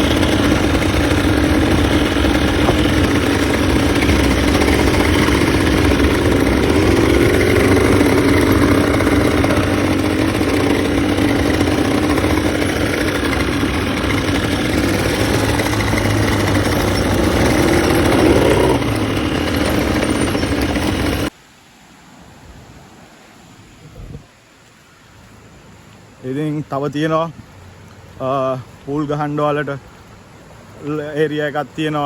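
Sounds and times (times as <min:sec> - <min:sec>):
quad bike engine running: 0:00.0 - 0:21.3.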